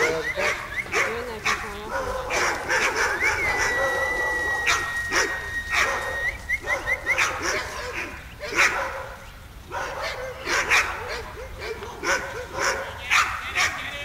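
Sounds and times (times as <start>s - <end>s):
sled dogs barking and yelping: 0.0s - 14.0s
quick rising chirps: 2.7s - 7.3s
steady high whistling tone: 2.8s - 7.4s.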